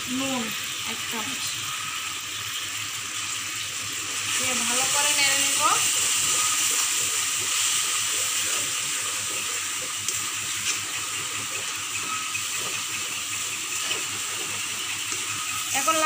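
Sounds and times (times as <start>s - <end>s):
spice paste sizzling in oil: 0.0s - 16.0s.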